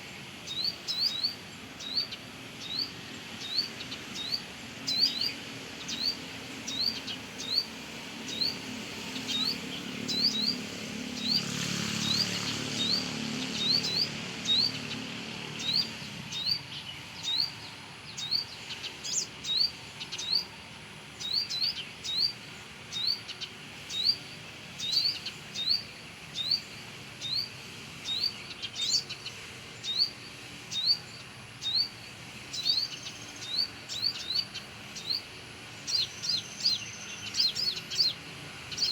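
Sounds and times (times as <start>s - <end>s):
bird sharp rising chirps: 0.5s - 20.5s.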